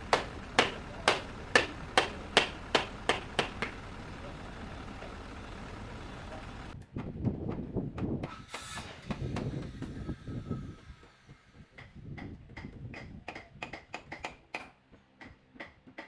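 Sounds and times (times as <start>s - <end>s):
sharp knocks: 0.0s - 5.9s
clatter: 0.0s - 6.8s
low rumbling: 0.0s - 6.8s.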